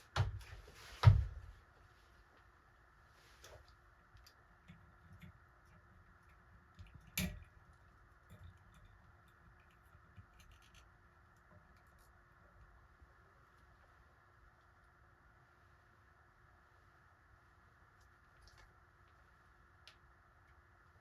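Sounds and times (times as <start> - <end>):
small parts and tools clicking: 4.1 - 12.2.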